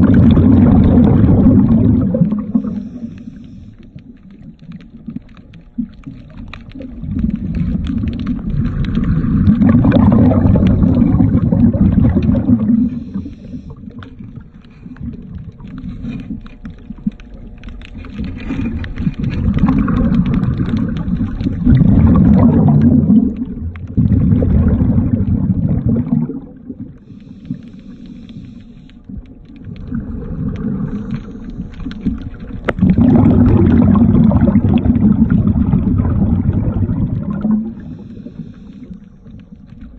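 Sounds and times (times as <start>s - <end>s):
bubbles rushing underwater: 0.0s - 3.3s, 4.0s - 27.2s, 29.1s - 39.9s
water gurgling: 0.0s - 39.9s
diver breathing through regulator: 2.3s - 4.1s, 12.2s - 15.0s, 27.0s - 29.1s, 30.1s - 32.1s, 37.6s - 39.5s.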